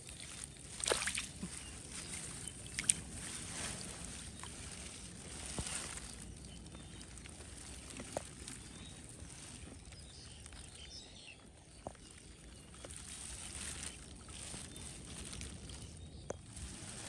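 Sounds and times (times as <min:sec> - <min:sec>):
water sloshing and splashing: 0:00.0 - 0:10.8, 0:11.8 - 0:17.0.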